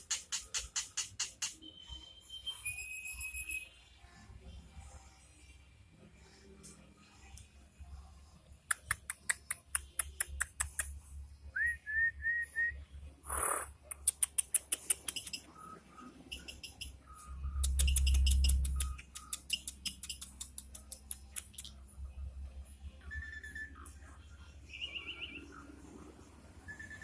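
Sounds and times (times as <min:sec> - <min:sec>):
starling clicking chatter: 0:00.0 - 0:01.6, 0:08.7 - 0:10.9, 0:13.8 - 0:15.6, 0:17.6 - 0:21.8.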